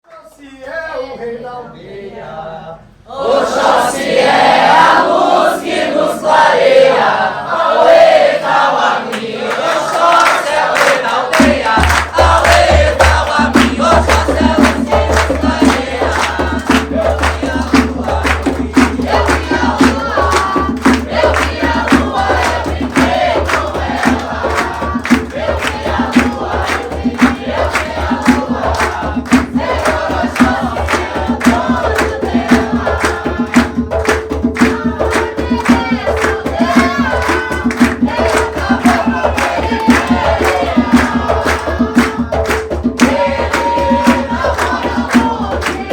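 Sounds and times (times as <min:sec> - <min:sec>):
group of voices chanting: 0:01.0 - 0:33.7, 0:34.7 - 0:45.9
hand drums beating: 0:11.4 - 0:45.9.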